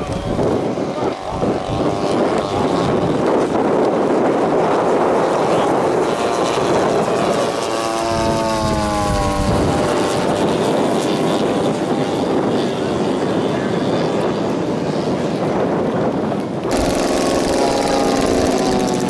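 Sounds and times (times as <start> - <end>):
model airplane engine drone: 0.0 - 19.0.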